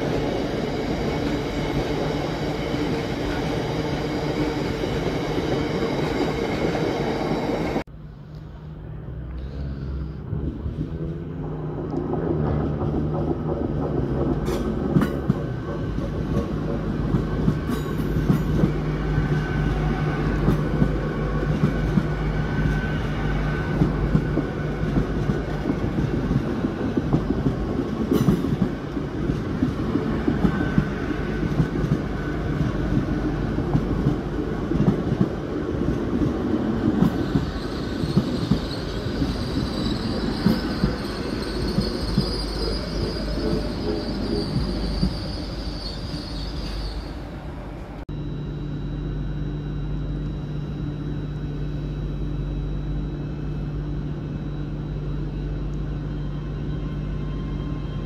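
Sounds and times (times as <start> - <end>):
train wheels rumbling on rail: 0.0 - 7.9, 8.6 - 48.0
high whine: 0.0 - 58.0
faint wheel squeal: 37.1 - 47.4.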